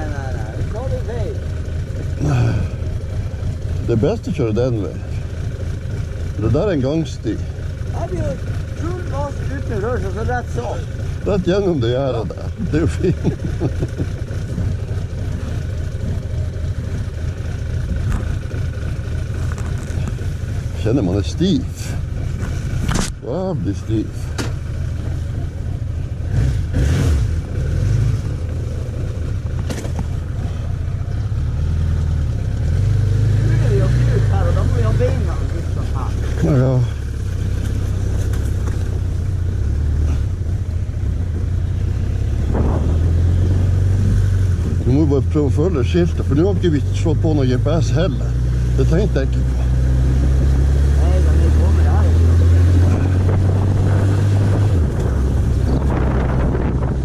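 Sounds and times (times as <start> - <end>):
motorcycle engine running: 0.0 - 57.0
wind noise: 41.0 - 45.0, 52.8 - 57.0.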